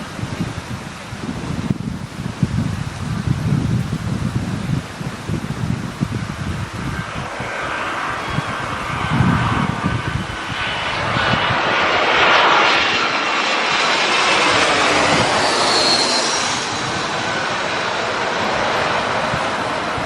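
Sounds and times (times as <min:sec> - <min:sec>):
jet airliner passing overhead: 0:00.0 - 0:20.0
wind buffeting microphone: 0:00.0 - 0:20.0
faint high whine: 0:04.7 - 0:20.0.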